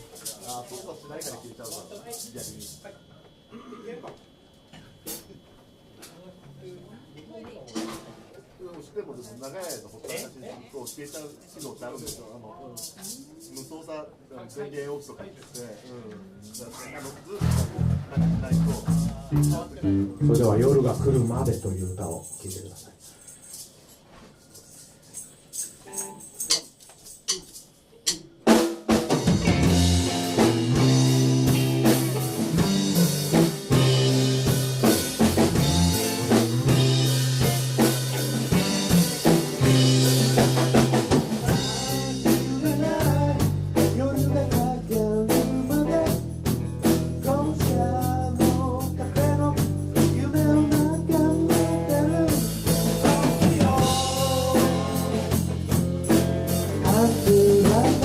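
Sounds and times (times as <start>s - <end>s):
rock band playing: 17.4s - 21.8s, 28.4s - 58.0s.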